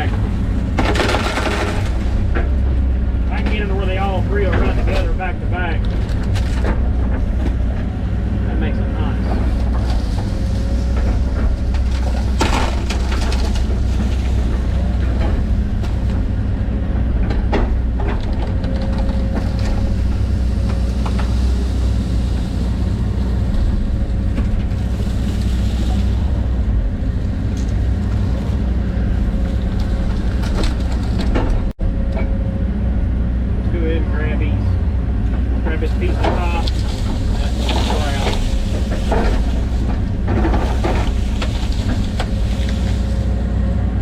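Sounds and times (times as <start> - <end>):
knocks and cracks: 0.0 - 5.2, 9.2 - 16.5
excavator diesel engine running: 0.0 - 44.0.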